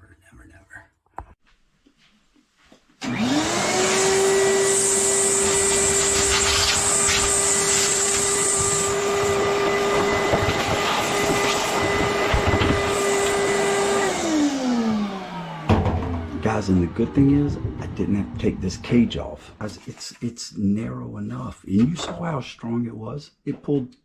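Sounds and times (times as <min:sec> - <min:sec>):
vacuum cleaner motor whine: 0:03.0 - 0:18.6.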